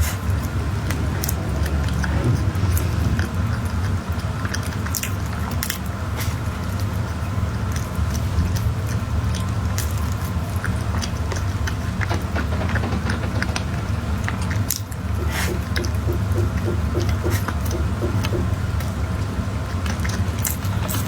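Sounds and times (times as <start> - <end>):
chewing soft cake: 0.0 - 13.5, 14.2 - 21.0
low hum: 0.2 - 6.1.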